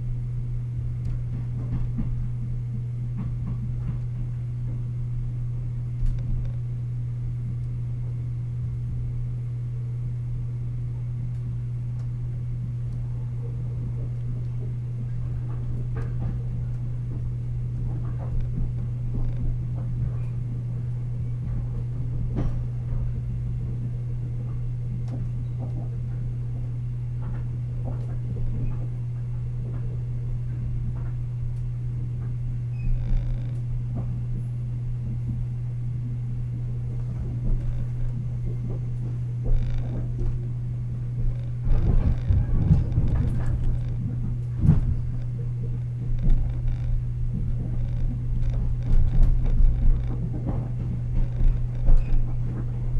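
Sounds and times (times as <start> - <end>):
train low hum: 0.0 - 32.8, 33.6 - 52.9
train car knocking and rattling: 15.5 - 23.9, 41.2 - 52.9.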